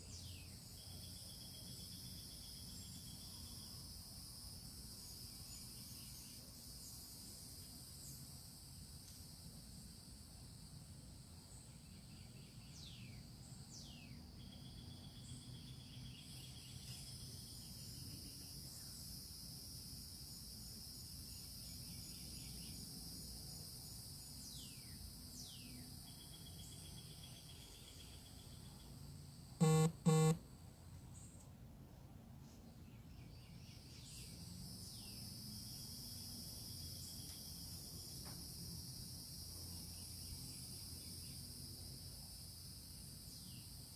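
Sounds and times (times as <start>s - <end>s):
short loud honks: 29.6s - 30.4s.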